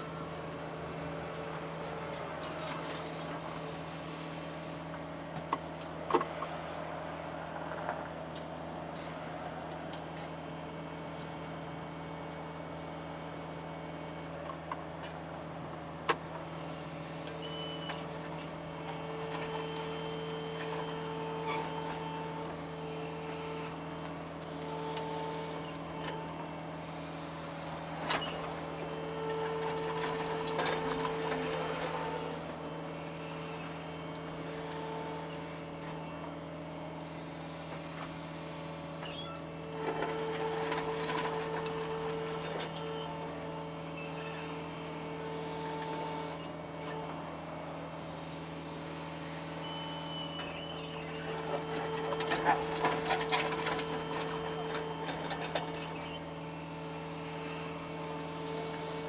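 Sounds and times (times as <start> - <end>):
excavator diesel engine running: 0.0 - 59.0
hydraulic whine: 16.3 - 59.0.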